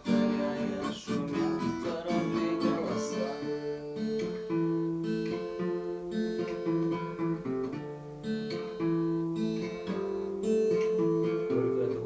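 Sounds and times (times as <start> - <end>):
person singing: 0.0 - 4.3, 11.2 - 12.0
acoustic guitar strumming: 0.0 - 12.0.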